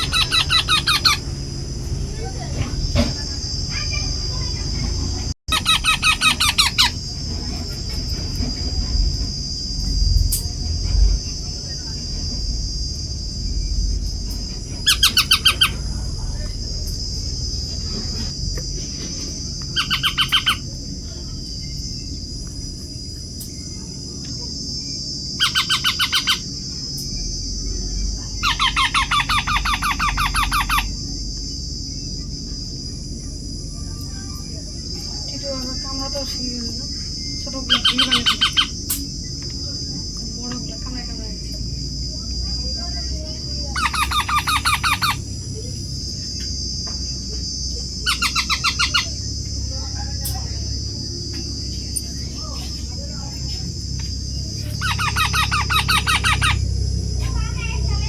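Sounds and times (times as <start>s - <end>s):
parrot chicks squawking: 0.0s - 8.5s, 14.3s - 18.3s, 19.6s - 20.9s, 25.4s - 26.7s, 28.1s - 31.2s, 33.8s - 39.1s, 42.9s - 46.4s, 47.4s - 58.0s
steady high buzz: 0.0s - 58.0s.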